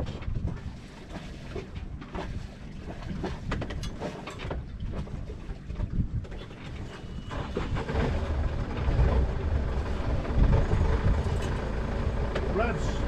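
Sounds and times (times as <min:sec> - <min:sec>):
wind buffeting microphone: 0:00.0 - 0:03.9, 0:04.5 - 0:11.9.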